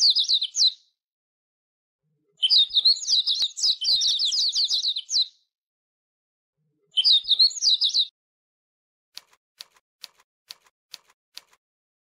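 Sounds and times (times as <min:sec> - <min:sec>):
small bird chirping: 0:00.0 - 0:01.0, 0:02.4 - 0:05.5, 0:06.9 - 0:08.1.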